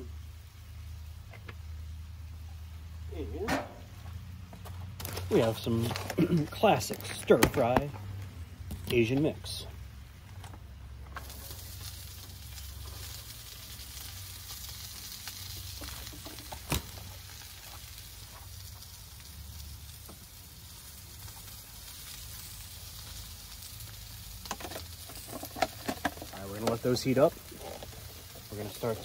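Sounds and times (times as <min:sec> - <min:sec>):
food sizzling on a griddle: 0:05.1 - 0:08.2, 0:10.9 - 0:29.0.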